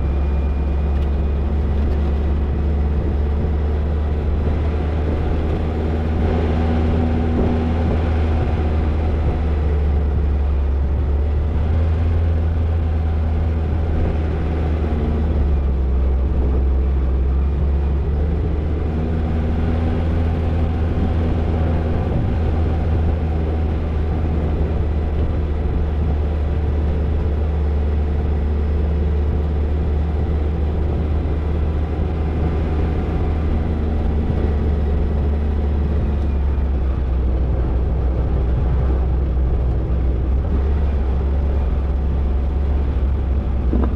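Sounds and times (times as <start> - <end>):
car engine rumbling: 0.0 - 43.9.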